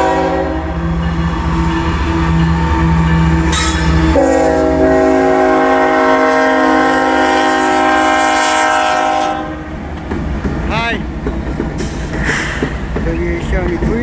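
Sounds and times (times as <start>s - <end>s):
locomotive air horn chord: 0.0s - 0.8s, 2.9s - 9.7s
diesel locomotives rumbling: 0.0s - 14.0s.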